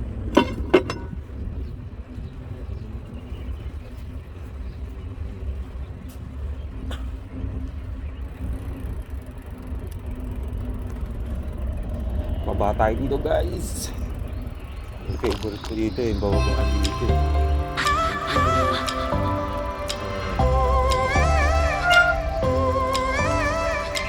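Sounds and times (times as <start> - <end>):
mountain bike riding rumble: 0.0 - 24.0
faint clicks: 6.9 - 12.4, 17.8 - 24.0.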